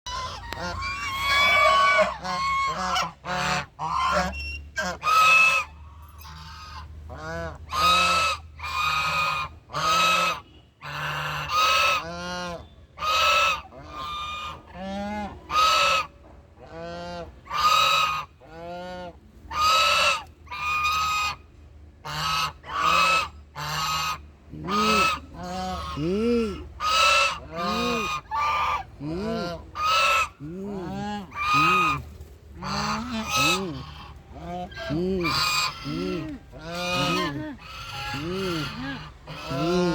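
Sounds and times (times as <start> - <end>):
waterfowl calling: 0.1 - 16.1, 16.7 - 21.4, 22.0 - 39.9.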